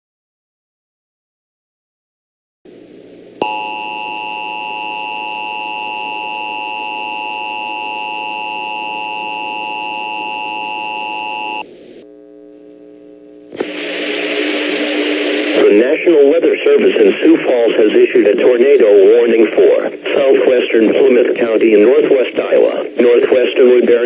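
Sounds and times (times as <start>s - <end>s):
electronic two-tone alarm: 3.4s - 11.6s
radio hiss: 9.1s - 24.0s.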